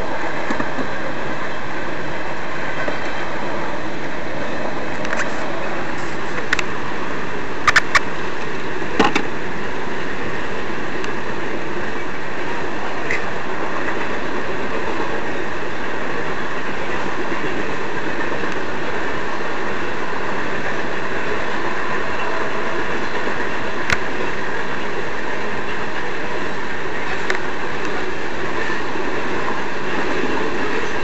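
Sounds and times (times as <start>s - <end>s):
train wheels rumbling and rattling: 0.0s - 31.0s
sharp clicks: 7.6s - 8.1s.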